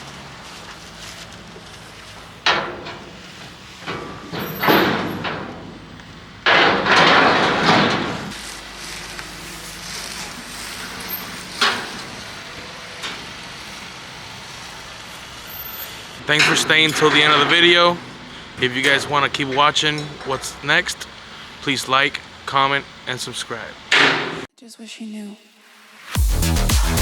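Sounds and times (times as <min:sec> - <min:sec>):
clattering rush: 0:00.0 - 0:24.5
sharp knocks and bangs: 0:02.1 - 0:08.4, 0:23.8 - 0:24.5.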